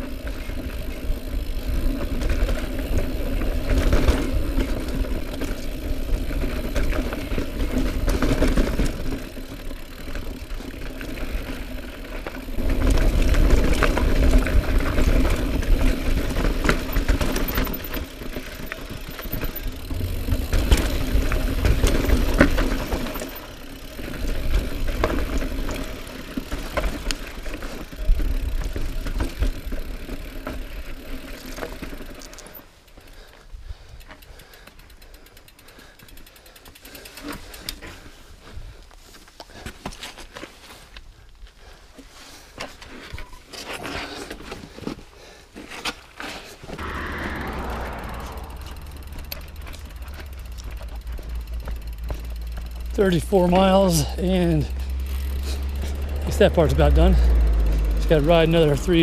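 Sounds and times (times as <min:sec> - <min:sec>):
bike rattling: 0:00.0 - 0:59.0
wind rumble on microphone: 0:46.8 - 0:50.6
fast fine ticking: 0:46.8 - 0:59.0.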